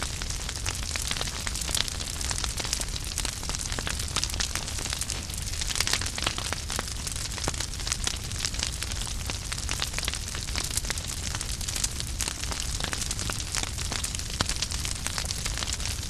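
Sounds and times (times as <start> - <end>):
fire crackling and popping: 0.0 - 16.0.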